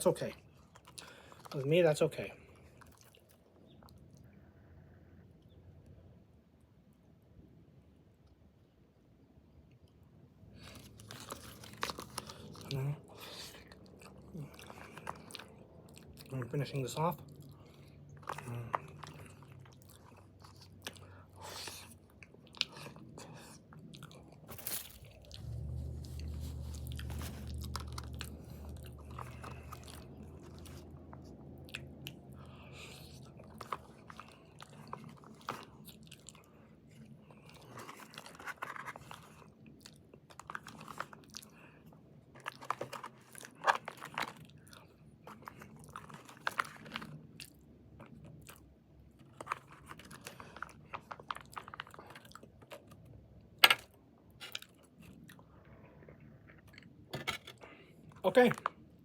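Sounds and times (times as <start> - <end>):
person chewing food: 0.3 - 1.6, 2.4 - 5.5, 9.6 - 59.0
low hum: 24.2 - 34.3.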